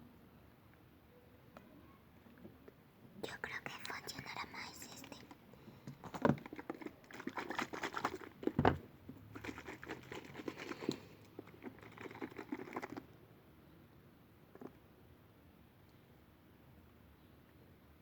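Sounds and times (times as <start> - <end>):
light tapping and crinkling: 3.8 - 13.0.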